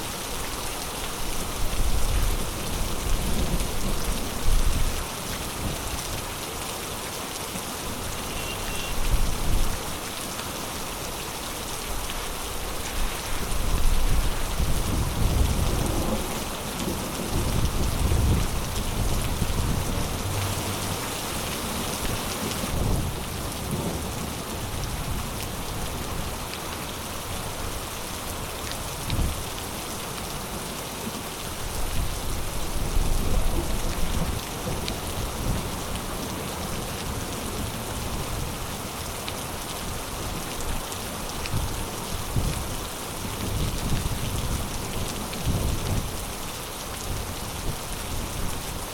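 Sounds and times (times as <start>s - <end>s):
heavy rain falling: 0.0s - 48.9s.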